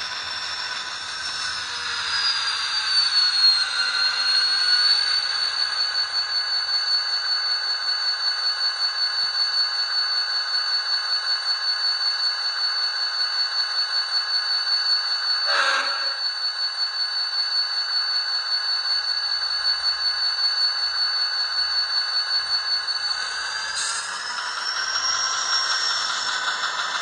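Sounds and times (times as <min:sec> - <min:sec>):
model train engine sound: 0:00.0 - 0:09.0, 0:15.2 - 0:16.4, 0:18.8 - 0:27.0.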